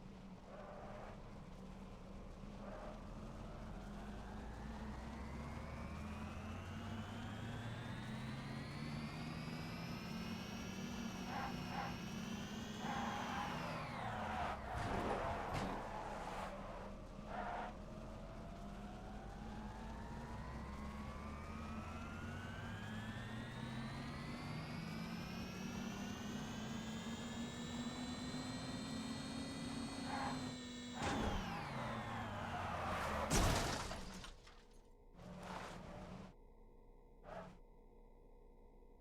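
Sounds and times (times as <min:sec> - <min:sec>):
electric motors whining: 0:21.8 - 0:33.2.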